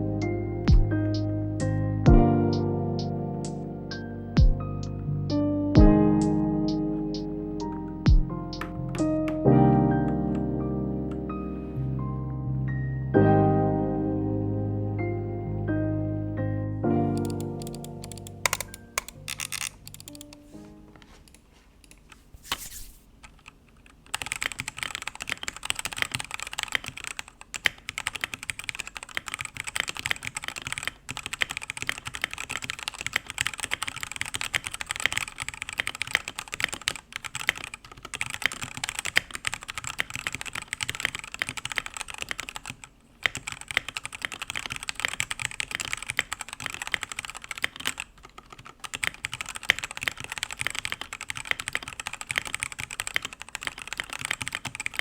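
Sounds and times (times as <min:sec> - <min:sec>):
mechanical keyboard typing: 0:17.1 - 0:20.5, 0:23.2 - 0:55.0.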